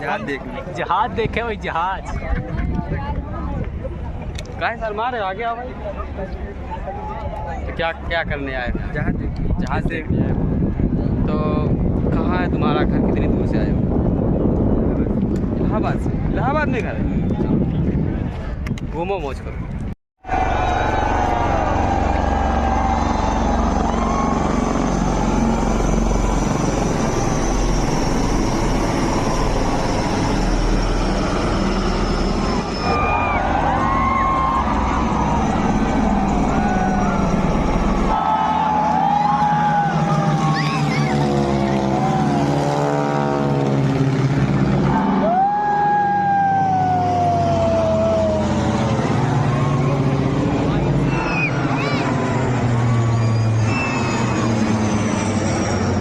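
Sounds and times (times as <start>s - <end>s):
aircraft flying overhead: 20.3s - 56.0s
jet engine whine: 20.3s - 56.0s.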